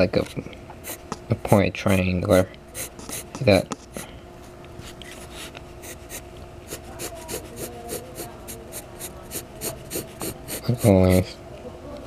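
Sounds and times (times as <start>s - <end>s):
faint steady hum: 0.0s - 12.0s
drawing tool scratching: 5.1s - 11.2s.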